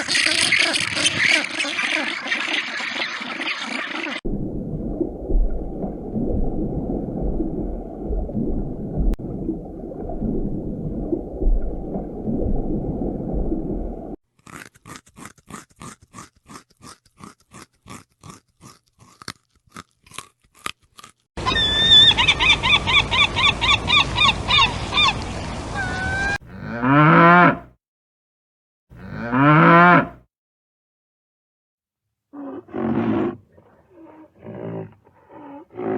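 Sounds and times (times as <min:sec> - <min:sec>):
long pitch-bending animal calls: 0:21.4 - 0:26.4.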